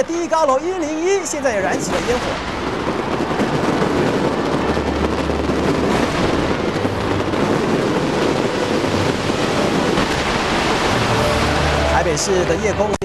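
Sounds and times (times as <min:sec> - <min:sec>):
fireworks rumbling: 0:00.0 - 0:13.0.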